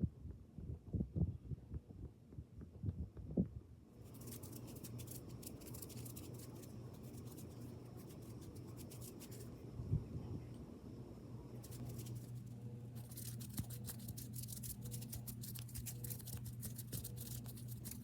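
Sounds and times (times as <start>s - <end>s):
low steady hum: 0.0s - 18.0s
fine crackling and scratching: 4.0s - 9.5s, 11.6s - 18.0s.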